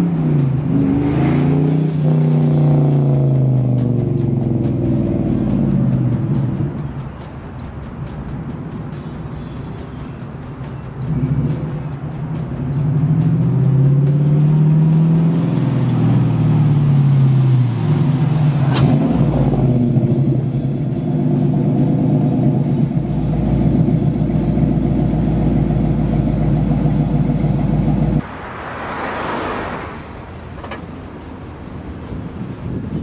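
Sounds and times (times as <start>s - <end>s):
passing car rush: 0.0s - 33.0s
car engine deep rumbling idle: 19.3s - 28.2s.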